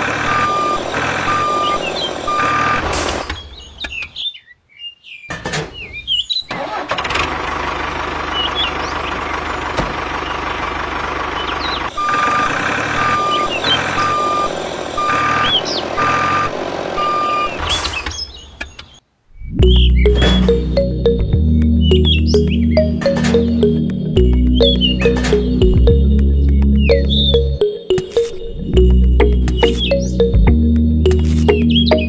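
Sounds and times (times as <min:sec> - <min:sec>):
birds chirping: 0:28.7 - 0:32.0.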